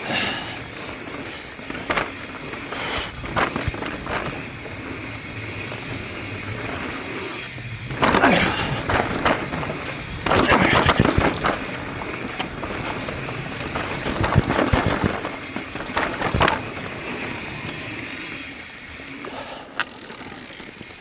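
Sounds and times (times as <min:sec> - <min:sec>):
bike clattering over bumps: 0:00.0 - 0:21.0
bike rattling: 0:00.0 - 0:21.0
bike tyres rolling over dirt: 0:00.0 - 0:21.0.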